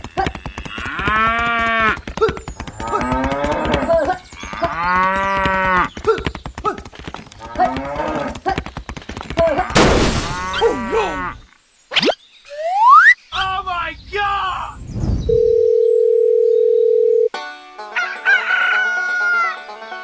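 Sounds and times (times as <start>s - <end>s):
cattle mooing: 7.4s - 8.4s, 10.4s - 11.4s
sharp crack: 9.6s - 10.7s.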